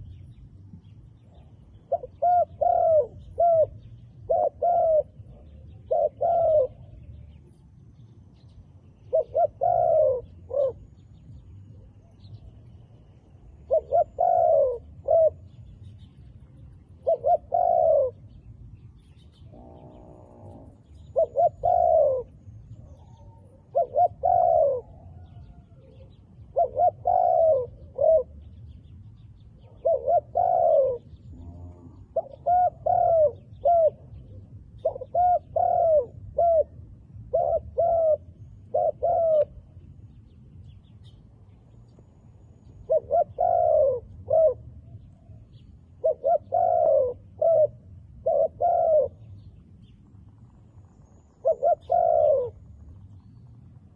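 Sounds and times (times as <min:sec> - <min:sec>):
dove cooing: 0:01.3 - 0:07.2, 0:09.0 - 0:11.0, 0:13.4 - 0:16.0, 0:16.8 - 0:18.6, 0:19.2 - 0:28.7, 0:29.6 - 0:39.8, 0:42.5 - 0:49.4, 0:51.4 - 0:52.8.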